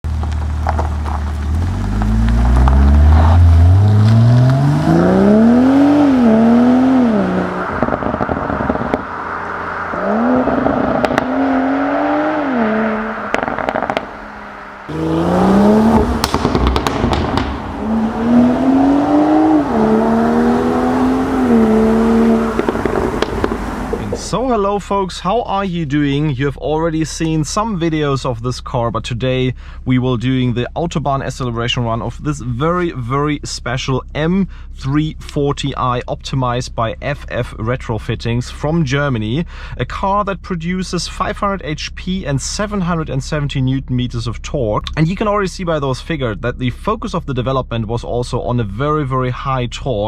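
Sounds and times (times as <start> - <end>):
exhaust crackles and pops: 0.0 - 11.8, 13.0 - 25.0
car engine accelerating hard: 0.2 - 24.4.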